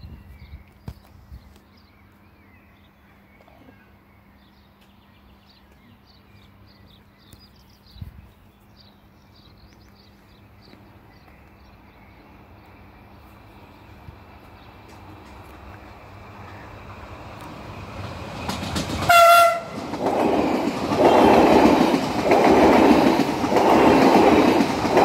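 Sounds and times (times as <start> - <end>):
bird chirping: 0.0 - 13.9
train rumble and rail hiss: 0.0 - 25.0.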